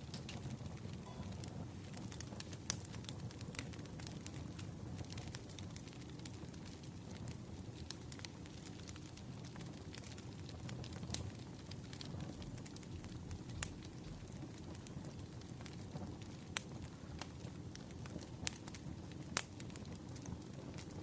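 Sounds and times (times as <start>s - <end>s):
wood fire crackling: 0.0s - 21.0s
low steady rumble: 11.6s - 15.4s.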